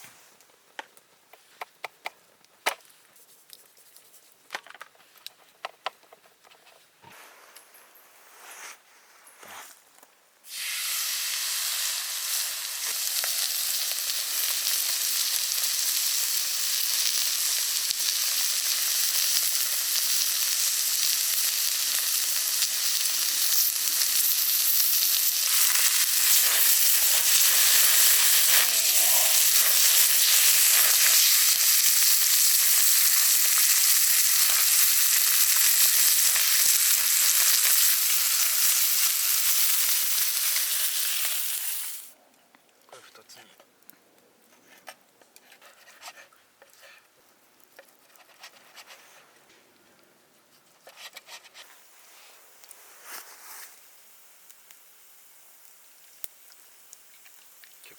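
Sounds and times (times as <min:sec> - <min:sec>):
steak sizzling in a hot pan: 0:10.5 - 0:42.1, 0:53.8 - 0:57.8.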